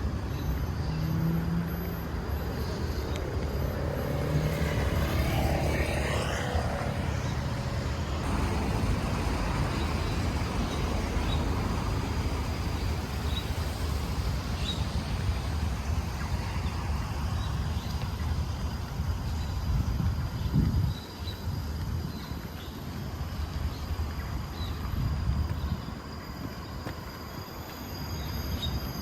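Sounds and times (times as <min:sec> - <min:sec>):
low outdoor rumble: 0:00.0 - 0:22.2.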